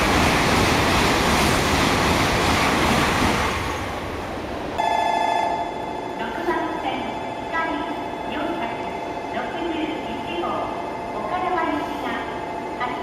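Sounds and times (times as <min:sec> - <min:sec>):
train passing with rushing noise: 0:00.0 - 0:13.0
electronic ringing tone: 0:04.8 - 0:06.2.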